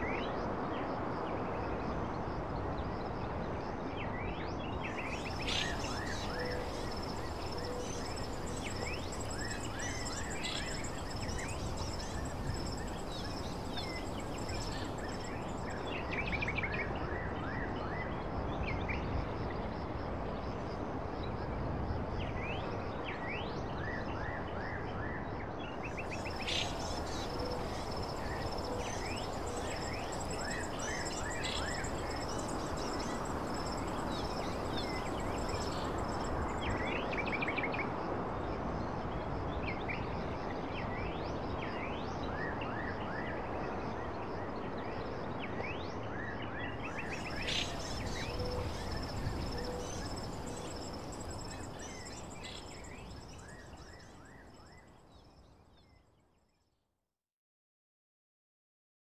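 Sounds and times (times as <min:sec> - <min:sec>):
outdoor background hiss: 0:00.0 - 0:24.6, 0:25.4 - 0:55.9
small songbirds chirping: 0:03.8 - 0:19.0, 0:25.6 - 0:37.7, 0:44.4 - 0:56.2
continuous high-pitched tone: 0:05.1 - 0:16.4, 0:26.0 - 0:37.3, 0:47.0 - 0:54.9.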